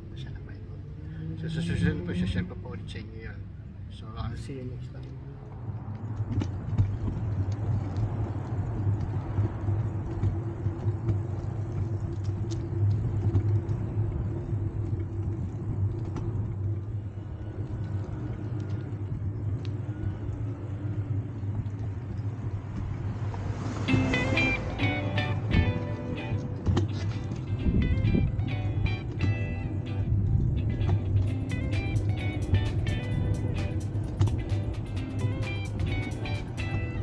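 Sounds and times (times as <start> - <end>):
traffic rumble: 0.0 - 37.0
music: 23.9 - 37.0.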